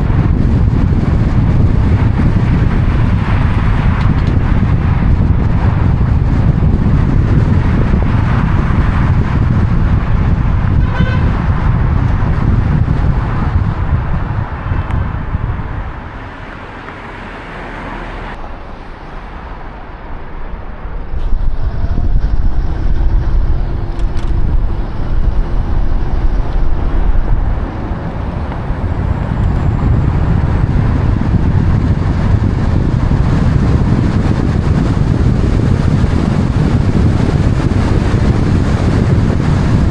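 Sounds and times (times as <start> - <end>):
road traffic: 0.0 - 39.9
wind rumble on microphone: 0.0 - 39.9
vehicle horn toot: 10.7 - 11.6.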